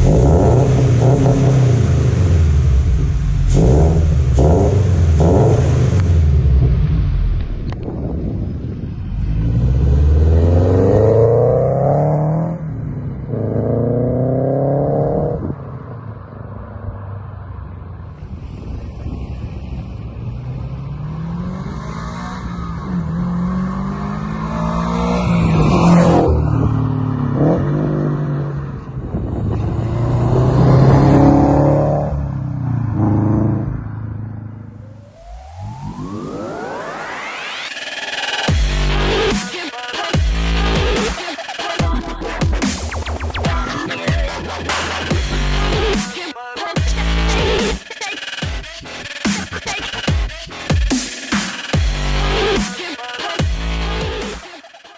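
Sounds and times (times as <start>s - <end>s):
car engine accelerating: 0.0s - 39.4s.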